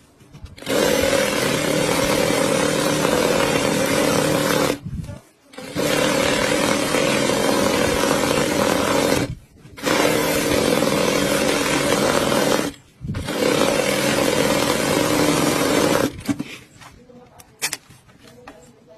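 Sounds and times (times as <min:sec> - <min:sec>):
sewing machine running: 0:00.6 - 0:04.8, 0:05.5 - 0:16.4.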